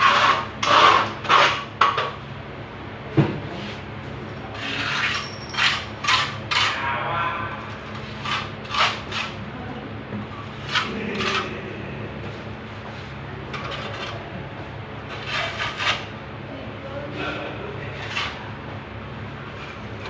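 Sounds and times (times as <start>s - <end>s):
hand tools scraping: 0.0s - 2.0s, 4.5s - 6.8s, 7.7s - 9.4s, 10.6s - 11.6s, 13.5s - 14.2s, 15.1s - 16.1s, 17.9s - 18.4s
steady low hum: 0.0s - 20.0s.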